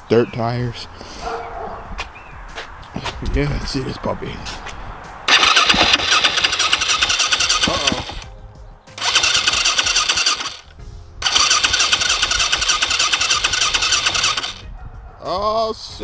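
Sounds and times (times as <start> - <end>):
motorcycle starter cranking engine: 5.3 - 8.3, 9.0 - 14.7.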